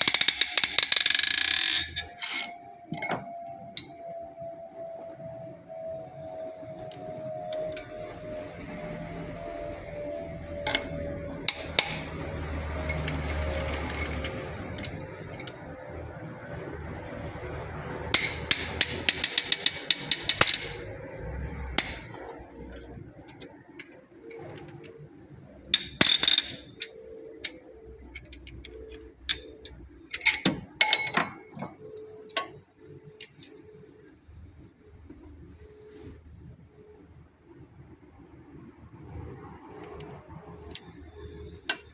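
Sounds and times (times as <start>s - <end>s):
metal tools clinking on engine parts: 0.0s - 3.4s, 10.6s - 15.7s, 25.7s - 32.5s.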